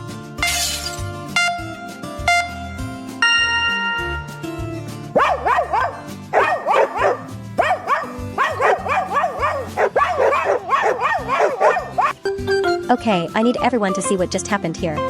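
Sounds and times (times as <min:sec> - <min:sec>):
background music with held notes: 0:00.0 - 0:15.0
dog yapping: 0:05.2 - 0:12.2.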